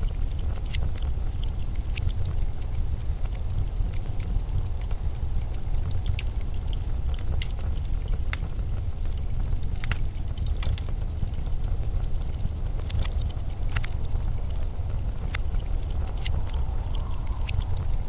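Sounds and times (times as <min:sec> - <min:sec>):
sharp crackles and ticks: 0:00.0 - 0:18.0
storm wind rushing: 0:14.3 - 0:18.0.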